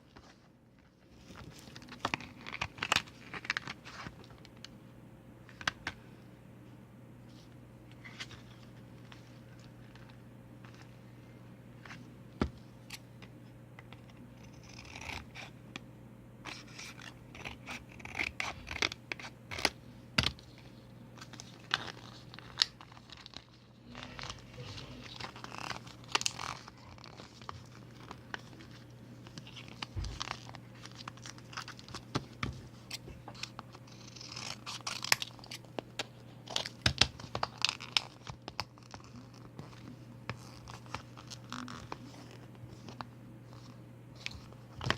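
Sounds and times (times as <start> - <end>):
paper rustling: 20.5 - 35.6.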